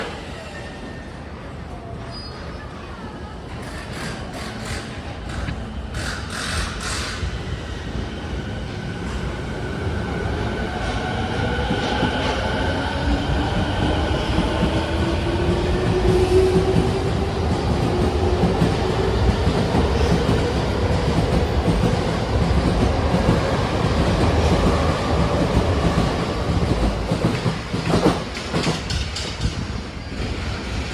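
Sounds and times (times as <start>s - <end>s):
wheels clattering on rail: 17.8s - 30.9s.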